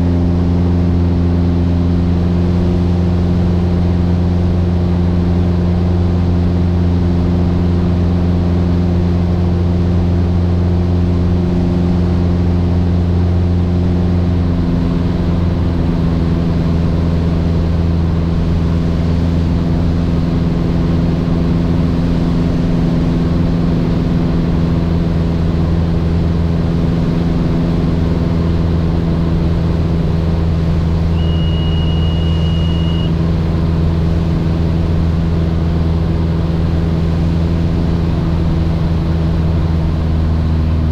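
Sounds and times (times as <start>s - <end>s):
airplane engine droning: 0.0s - 40.9s
high beep: 31.1s - 33.1s.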